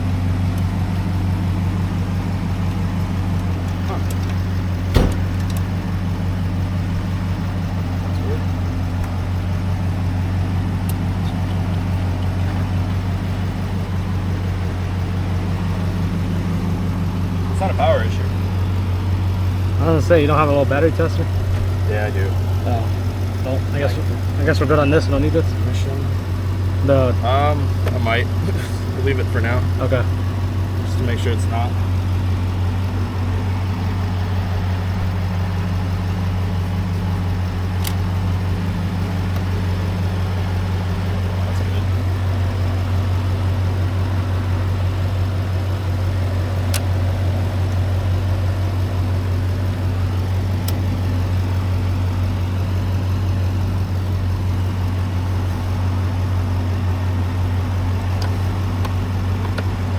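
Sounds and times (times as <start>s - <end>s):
vehicle engine idling: 0.0s - 59.9s
light click: 37.8s - 38.0s.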